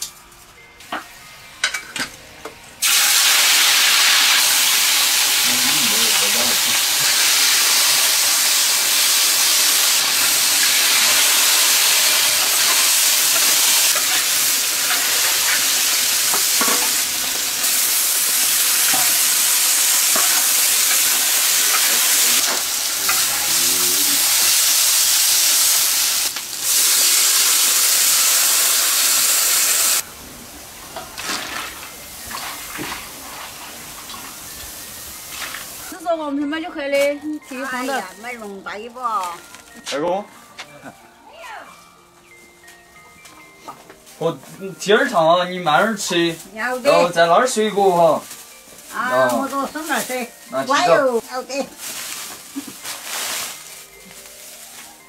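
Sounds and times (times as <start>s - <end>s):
meat sizzling in a wok: 2.8s - 36.0s, 44.2s - 54.8s
wok hissing with steam: 2.8s - 36.0s, 45.3s - 54.8s.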